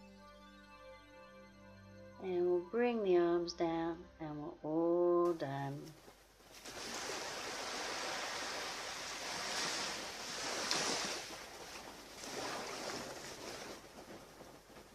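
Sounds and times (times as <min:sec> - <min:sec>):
waves washing on beach: 0:06.6 - 0:14.9.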